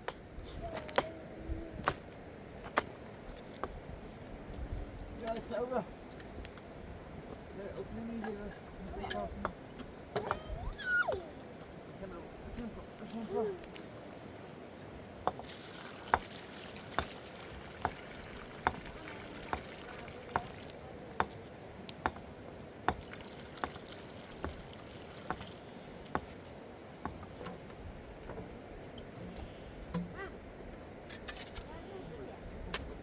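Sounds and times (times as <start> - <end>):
running water: 15.4 - 26.6.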